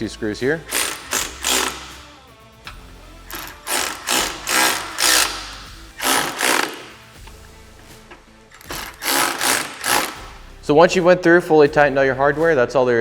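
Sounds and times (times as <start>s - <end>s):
background music: 0.0s - 13.0s
power driver driving screws: 0.6s - 2.1s, 2.7s - 7.4s, 8.5s - 10.4s.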